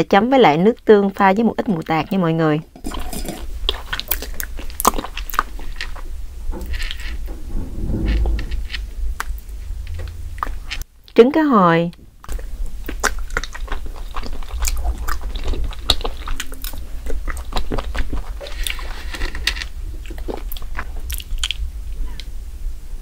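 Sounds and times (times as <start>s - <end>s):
wet chewing: 2.9s - 6.1s, 12.2s - 21.6s.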